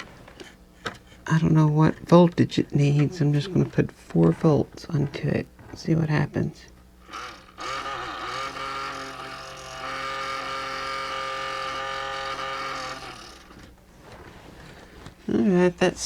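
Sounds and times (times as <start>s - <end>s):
small electric motor whine: 7.0s - 14.3s.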